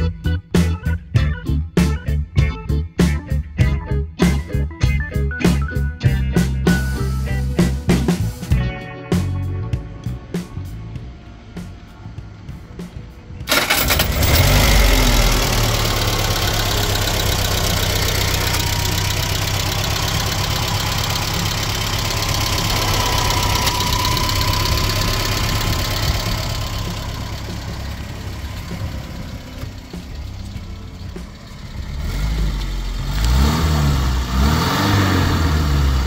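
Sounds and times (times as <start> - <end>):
car engine starting and idling: 9.1 - 36.0.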